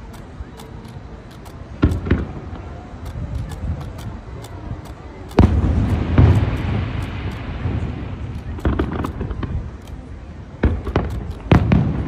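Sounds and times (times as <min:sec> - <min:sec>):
fireworks bangs: 0:01.6 - 0:12.0
loud firework boom with rumble: 0:05.4 - 0:09.6, 0:10.6 - 0:12.0.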